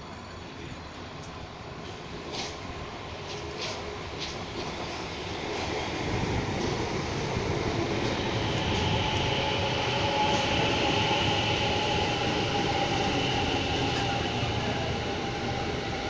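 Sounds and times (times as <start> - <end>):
train running on rails: 0.0 - 16.0.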